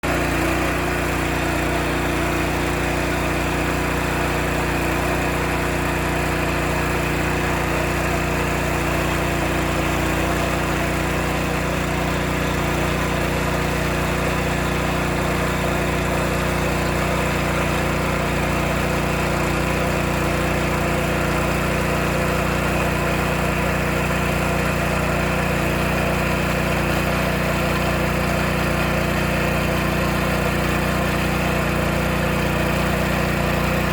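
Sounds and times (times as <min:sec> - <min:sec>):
drilling rig engine running: 0:00.0 - 0:33.9.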